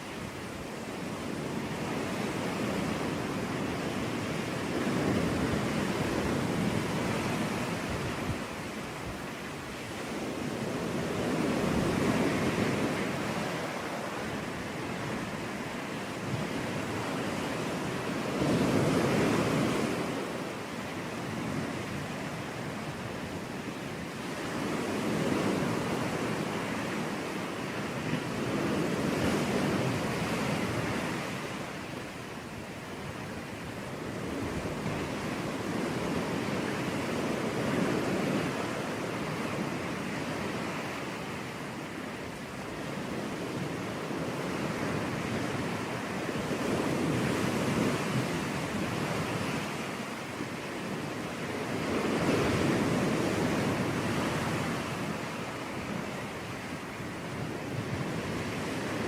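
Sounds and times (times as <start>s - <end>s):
sea waves breaking on beach: 0.0s - 59.0s.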